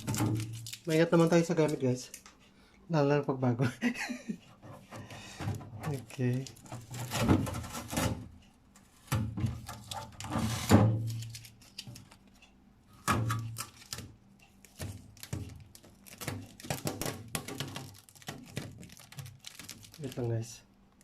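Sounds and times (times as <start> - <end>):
boxed refrigerator knocks and scrapes: 6.6 - 8.3, 9.0 - 11.2.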